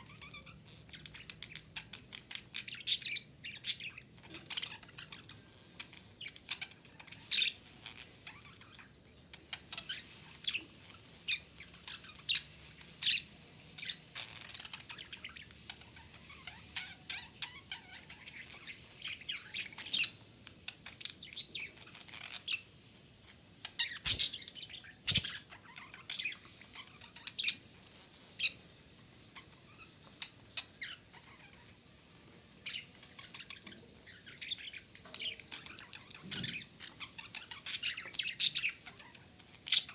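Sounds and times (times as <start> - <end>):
budgerigar chirping: 23.8 - 26.4.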